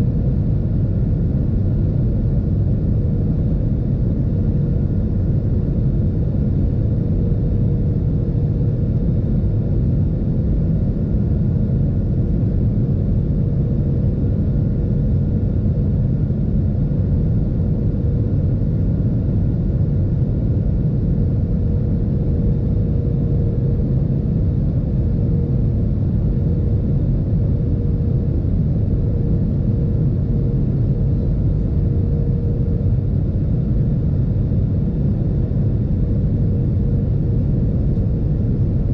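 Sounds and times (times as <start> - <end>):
airplane cabin rumble: 0.0 - 38.9
faint steady whine: 0.0 - 38.9.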